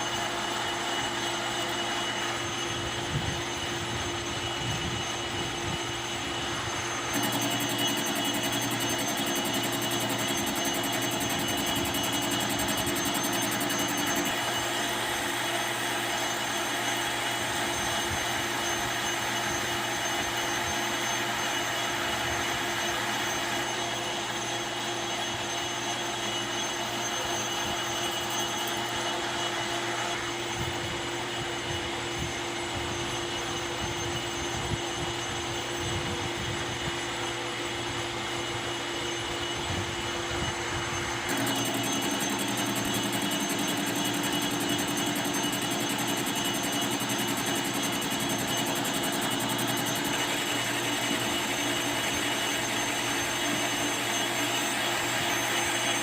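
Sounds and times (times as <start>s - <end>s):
lathe running: 0.0s - 56.0s.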